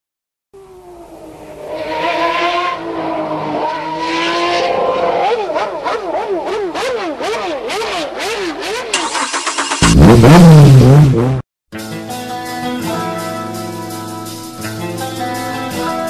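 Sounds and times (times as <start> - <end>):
rally car engine revving: 1.2 - 11.4
engine crackles: 7.7 - 11.4.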